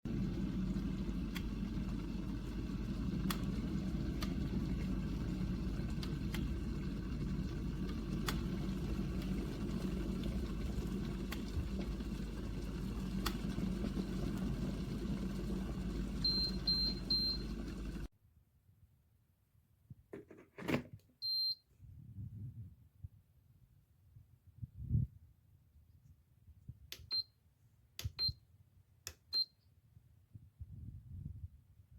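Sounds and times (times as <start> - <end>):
electric kettle heating water: 0.0 - 18.1
kettle ticking: 0.1 - 18.1.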